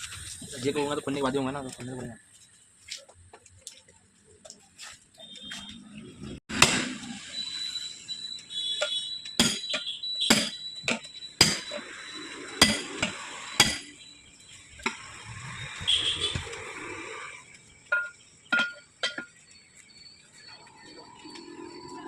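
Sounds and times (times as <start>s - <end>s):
metal tools clanking: 17.9s - 19.4s.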